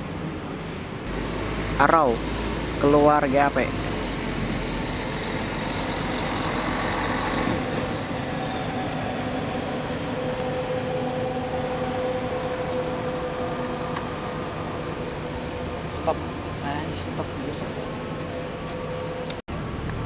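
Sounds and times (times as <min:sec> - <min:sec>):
bus diesel engines droning: 0:00.0 - 0:20.0.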